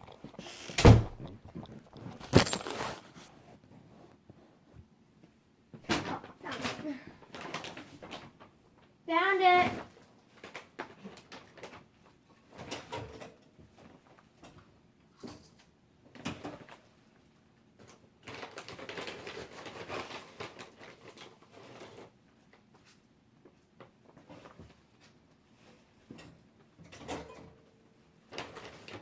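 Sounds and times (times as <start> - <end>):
rustling: 0.0 - 4.6.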